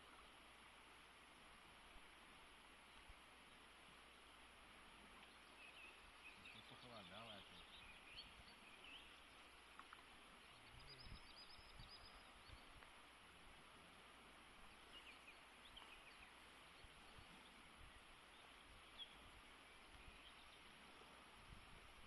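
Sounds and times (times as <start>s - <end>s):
steady hiss: 0.0s - 22.0s
faint high bird chirps: 5.2s - 12.8s, 14.8s - 20.7s.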